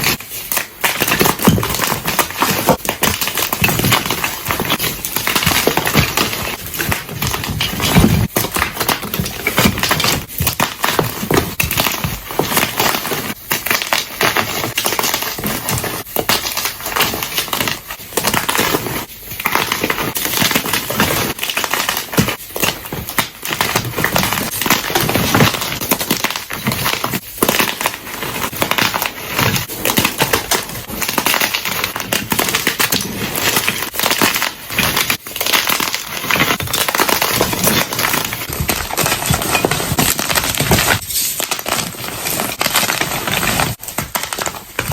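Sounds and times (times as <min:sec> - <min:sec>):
chalk blocks crunching: 0:00.0 - 0:44.9.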